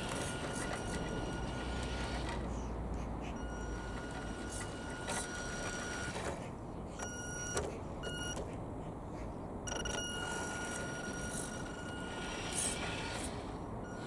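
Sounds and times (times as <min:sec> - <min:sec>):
electric motor whining: 0:10.2 - 0:14.0.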